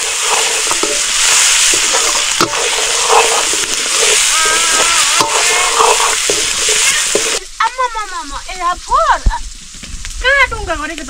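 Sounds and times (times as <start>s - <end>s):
food sizzling in a pan: 0.0s - 11.0s
high-pitched calls: 4.2s - 8.0s.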